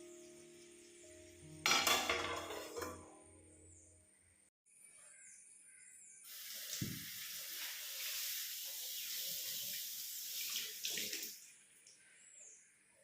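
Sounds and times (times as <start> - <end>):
faint bird chirps: 3.5 - 6.3
tap water running into sink: 6.3 - 11.4.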